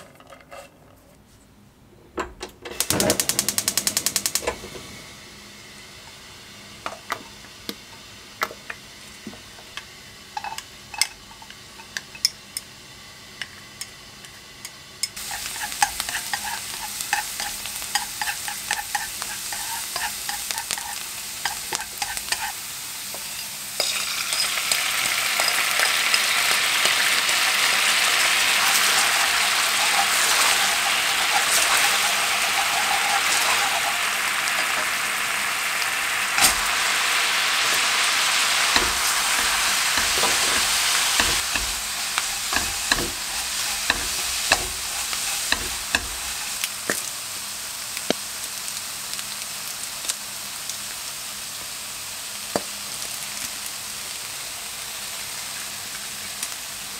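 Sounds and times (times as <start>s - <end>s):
garlic sizzling in oil: 15.0s - 56.9s
sauce sizzling and bubbling: 15.2s - 56.7s
light taps on wok: 38.8s - 47.0s.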